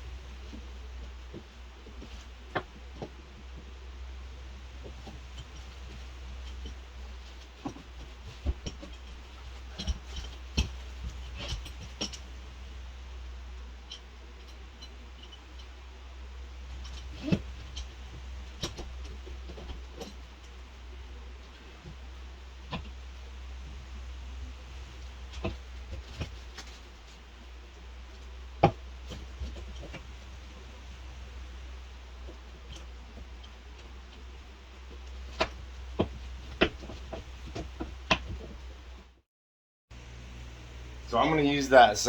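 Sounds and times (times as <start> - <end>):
steady low hum: 0.0 - 39.2, 39.9 - 42.0
light clicks taps and clinks: 4.8 - 12.4.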